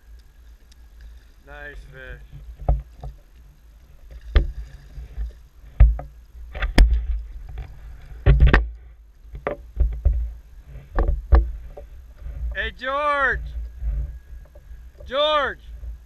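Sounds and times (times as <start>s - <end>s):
steady low rumble: 0.0s - 16.0s
knocks and thumps on kayak hull: 2.3s - 3.2s, 4.1s - 8.7s, 9.3s - 12.6s.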